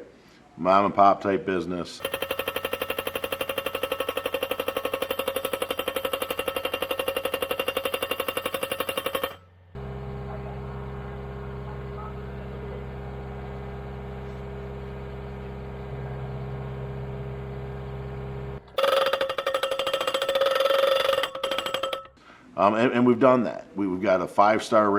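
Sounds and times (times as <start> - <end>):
fast mechanical rattle: 2.0 - 9.6, 18.6 - 22.2
steady low hum: 3.4 - 18.8.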